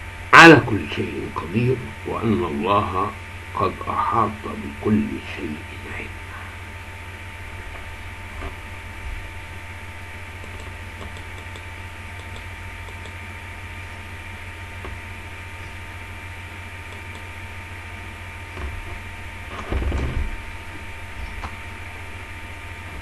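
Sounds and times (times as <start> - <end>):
electrical hum and hiss: 0.0 - 23.0
short low thump: 19.6 - 20.5.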